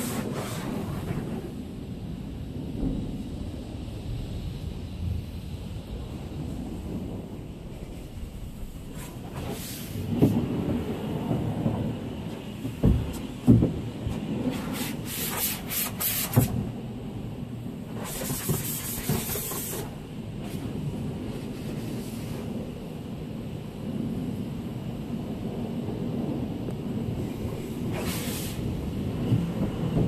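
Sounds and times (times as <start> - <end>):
knocks and thumps: 12.6 - 14.3, 18.0 - 19.9
pressure-washer spray hissing: 14.5 - 16.6, 18.0 - 20.0, 27.9 - 28.7.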